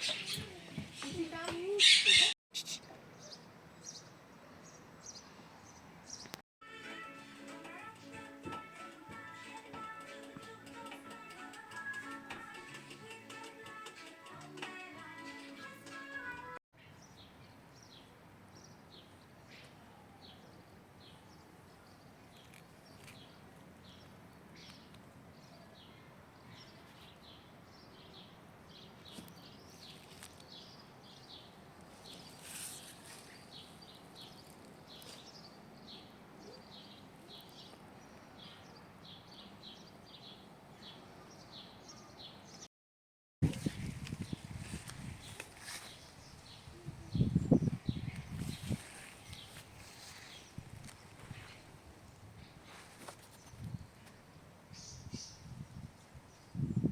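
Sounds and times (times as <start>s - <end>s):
small birds chirping: 0.0s - 6.4s, 16.8s - 42.7s, 43.8s - 56.9s.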